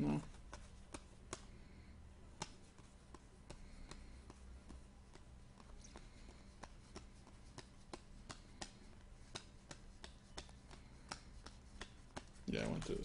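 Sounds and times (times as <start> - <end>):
trading cards flipped by hand: 5.1 - 13.0.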